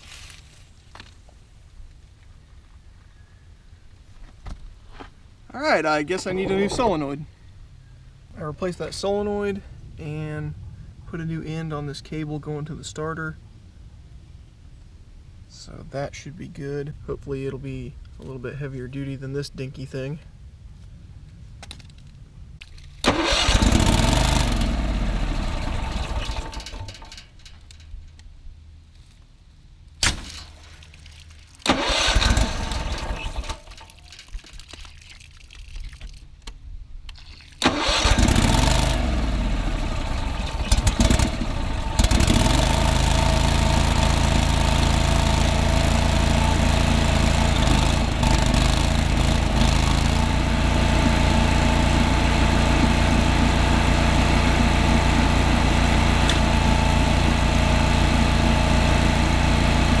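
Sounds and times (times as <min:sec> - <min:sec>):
electric starter cranking engine: 0:23.0 - 0:27.4, 0:31.6 - 0:34.2, 0:37.6 - 1:00.0
engine running steadily: 0:23.0 - 0:28.2, 0:31.6 - 0:33.9, 0:37.6 - 1:00.0.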